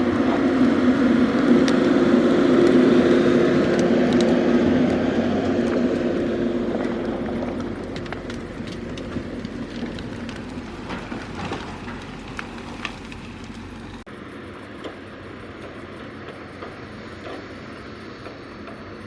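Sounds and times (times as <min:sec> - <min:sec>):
tracked machine engine droning: 0:00.0 - 0:19.0
sharp clatters and cracks: 0:01.4 - 0:14.1.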